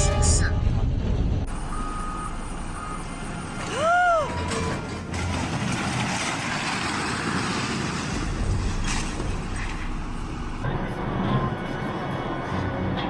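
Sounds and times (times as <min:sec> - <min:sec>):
heavy low rumble: 0:00.0 - 0:03.0
engine and tyre rush: 0:00.0 - 0:13.0.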